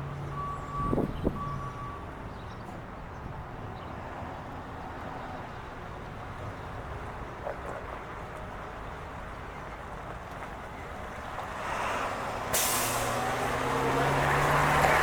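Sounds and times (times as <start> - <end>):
bus engine rumble: 0.0 - 15.0
air brakes hissing: 11.6 - 13.7.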